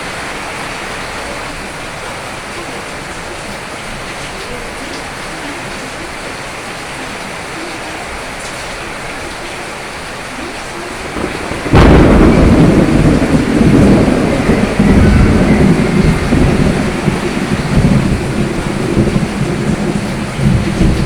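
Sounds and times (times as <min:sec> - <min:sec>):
steady rain: 0:00.0 - 0:21.0
thunder clap and rumble: 0:10.8 - 0:21.0.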